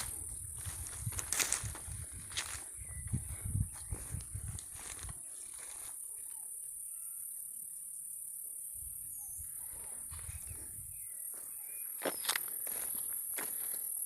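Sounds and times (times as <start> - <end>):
faint bird chirps: 2.4 - 4.2, 4.9 - 12.5.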